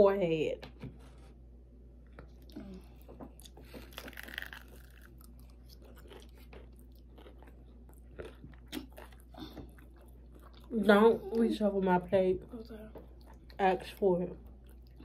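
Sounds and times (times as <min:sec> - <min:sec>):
person chewing crispy food: 0:02.1 - 0:10.8, 0:14.4 - 0:15.0.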